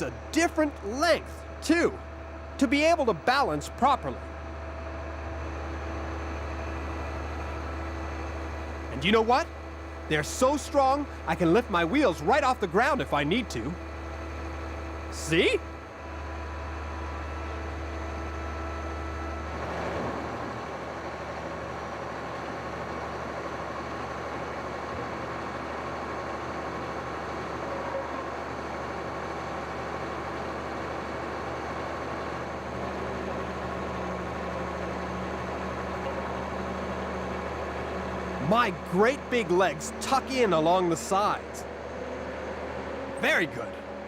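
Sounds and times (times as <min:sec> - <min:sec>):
deep steady hum: 0:00.0 - 0:18.1
diesel engine running: 0:00.0 - 0:44.0.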